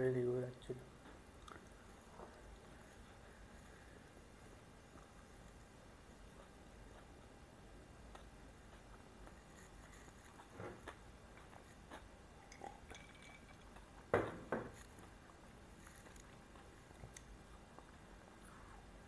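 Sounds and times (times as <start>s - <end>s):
man chewing: 1.2s - 4.0s, 8.0s - 14.1s.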